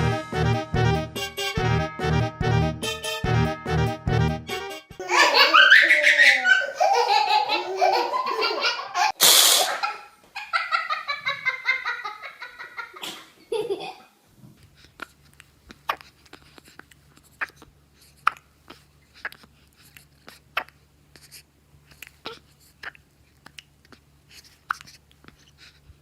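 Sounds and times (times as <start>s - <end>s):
young child laughing: 5.0s - 14.1s.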